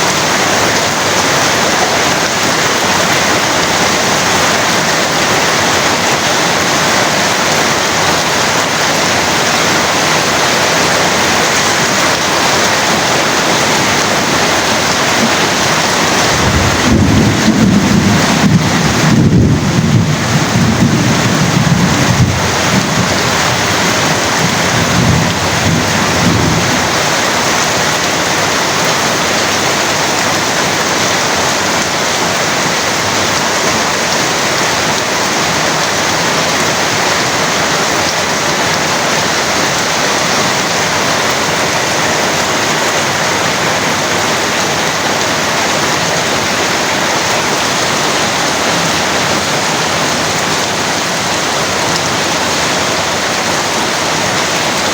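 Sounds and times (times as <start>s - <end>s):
heavy rain falling: 0.0s - 54.9s
low rumble of thunder: 16.1s - 27.0s.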